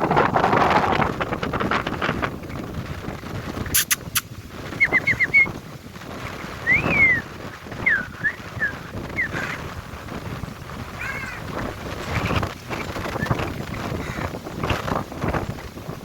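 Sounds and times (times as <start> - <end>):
wind rumble on microphone: 0.0 - 16.0
sharp clicks: 3.8 - 4.3.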